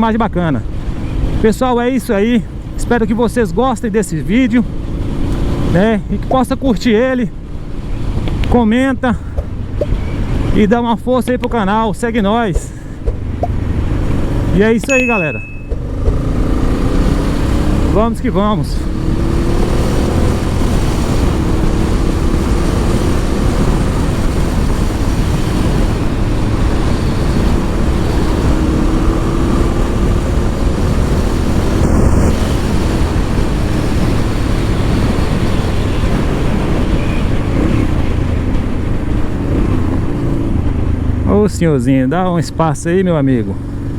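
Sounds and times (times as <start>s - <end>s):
motorcycle engine running: 11.4s - 41.5s
wind noise: 18.8s - 41.2s.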